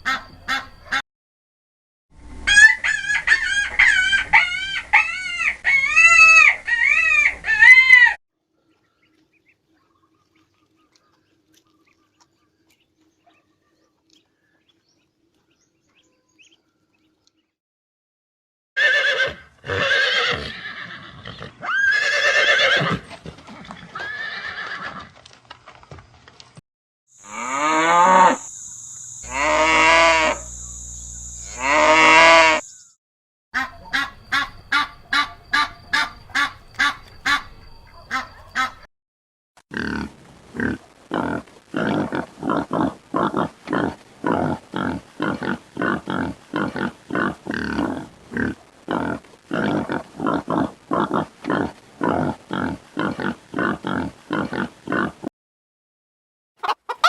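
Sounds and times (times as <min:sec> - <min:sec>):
long drawn-out animal calls: 0:29.2 - 0:32.7.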